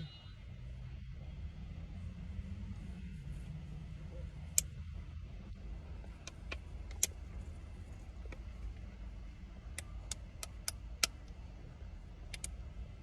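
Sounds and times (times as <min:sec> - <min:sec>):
low rumble in car cabin: 0:00.0 - 0:13.0
sharp clicks: 0:06.2 - 0:07.2, 0:12.2 - 0:12.6.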